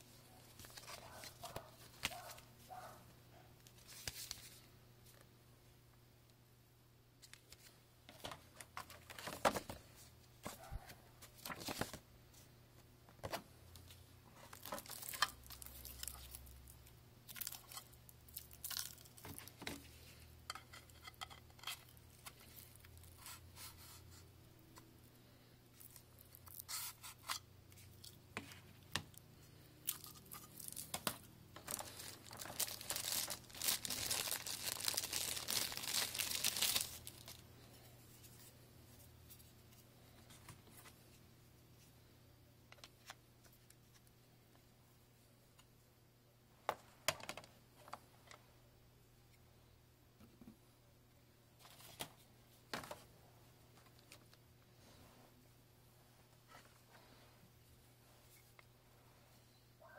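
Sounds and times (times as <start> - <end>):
packaging rustling and clicking: 29.9 - 37.4.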